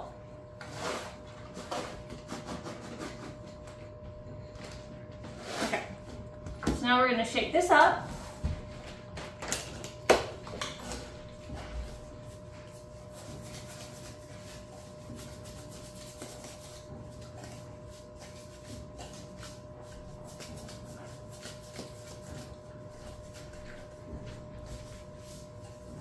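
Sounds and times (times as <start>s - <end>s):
powder swishing in a container: 11.8s - 26.0s.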